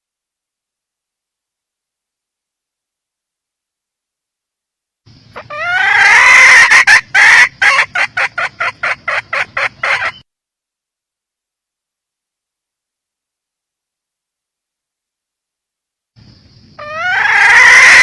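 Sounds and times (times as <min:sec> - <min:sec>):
hen squawking and clucking: 0:05.4 - 0:10.2, 0:16.8 - 0:18.0.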